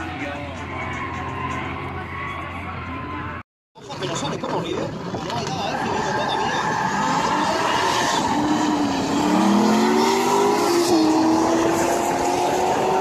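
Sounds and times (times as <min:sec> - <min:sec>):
car engine revving: 0:06.6 - 0:13.0.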